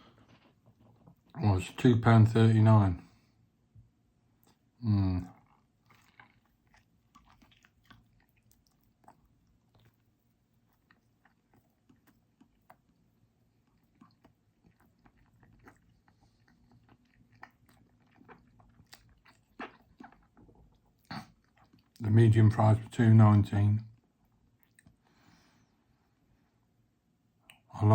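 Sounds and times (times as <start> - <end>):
person chewing: 4.4 - 22.0, 24.5 - 25.1.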